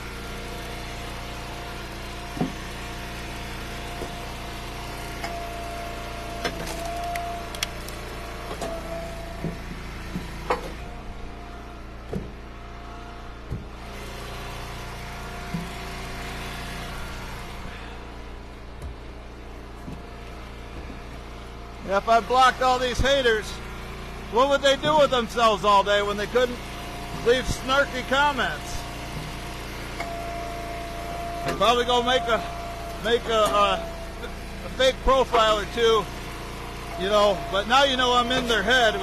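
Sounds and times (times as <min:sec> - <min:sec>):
wood splitter engine running: 0:00.0 - 0:39.0.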